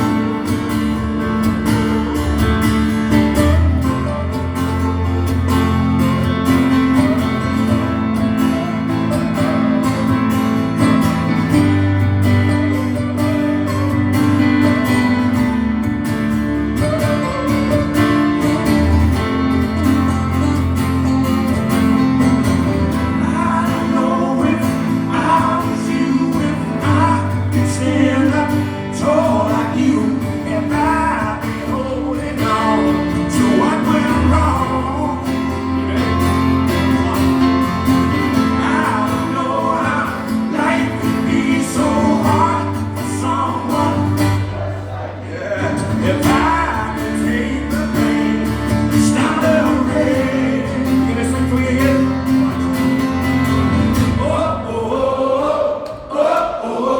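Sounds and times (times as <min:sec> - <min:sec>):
acoustic guitar strumming: 0:00.0 - 0:56.9
person singing: 0:22.7 - 0:52.8.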